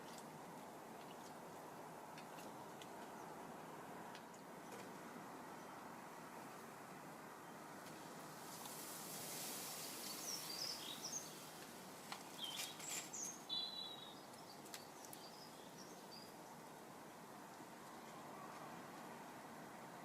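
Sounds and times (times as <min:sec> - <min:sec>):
steady background hiss: 0:00.0 - 0:20.0
small birds chirping: 0:09.6 - 0:16.8.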